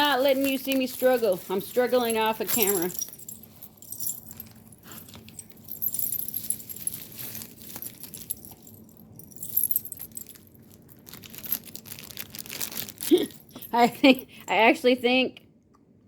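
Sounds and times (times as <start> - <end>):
packaging rustling: 0.0 - 13.7
light jingling: 0.0 - 14.8.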